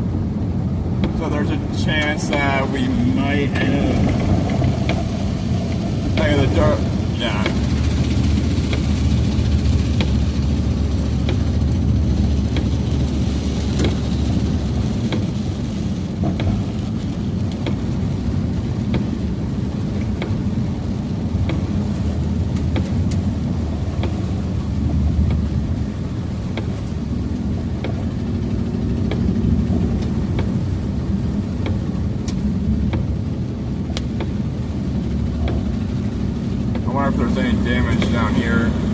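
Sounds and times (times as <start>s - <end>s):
car road and engine noise: 0.0s - 38.9s
light ticks: 7.4s - 10.4s, 11.1s - 15.4s, 16.2s - 17.8s, 19.9s - 20.4s, 21.4s - 23.3s, 24.0s - 25.5s, 26.5s - 30.7s, 31.5s - 33.2s, 33.8s - 34.4s, 35.2s - 35.8s, 37.8s - 38.3s.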